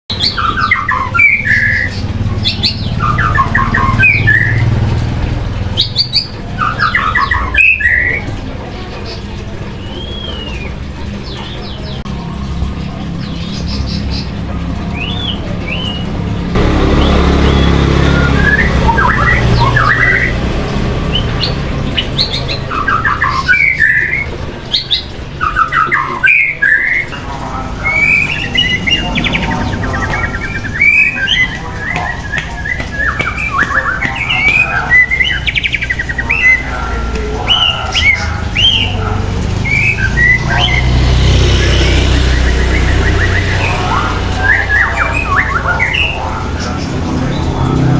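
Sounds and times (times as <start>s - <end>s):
songbird singing and chirping: 0.1s - 47.9s
steady low rumble: 27.1s - 40.7s.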